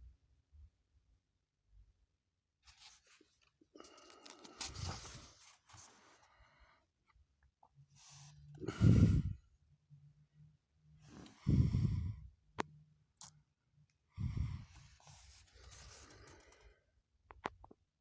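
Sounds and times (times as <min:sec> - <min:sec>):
breaths blown into microphone: 0:08.6 - 0:09.4, 0:11.2 - 0:12.2.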